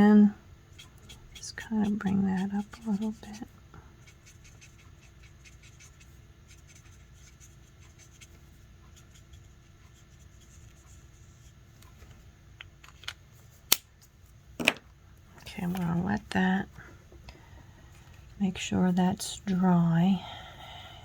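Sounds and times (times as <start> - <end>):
marker scratching on cardstock: 0.7 - 11.5.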